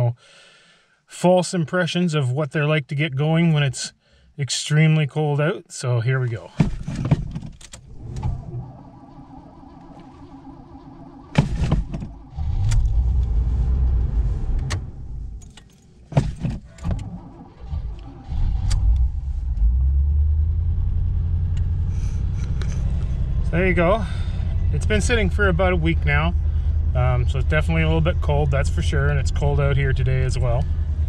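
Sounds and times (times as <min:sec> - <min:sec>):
car engine cranking: 0:06.5 - 0:23.5
car engine idling: 0:06.6 - 0:31.0.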